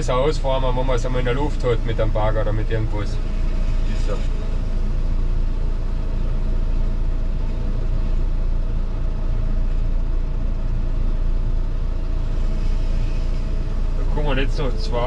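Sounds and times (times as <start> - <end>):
faint steady whine: 0.0 - 15.0
tractor diesel engine running: 0.0 - 15.0.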